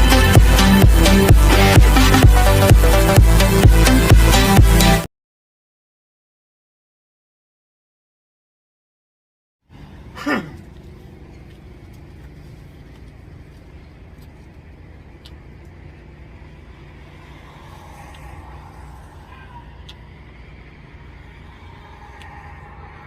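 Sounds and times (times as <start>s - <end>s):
low vehicle rumble: 0.0s - 4.9s, 9.7s - 23.0s
faint clicks: 19.8s - 20.0s.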